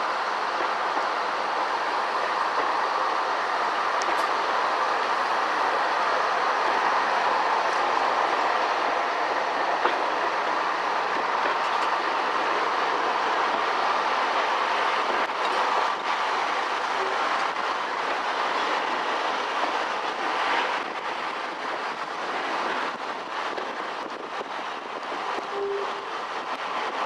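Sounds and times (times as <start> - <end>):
train wheels rumbling on rail: 0.0 - 27.0
rail joint clicks: 0.4 - 27.0.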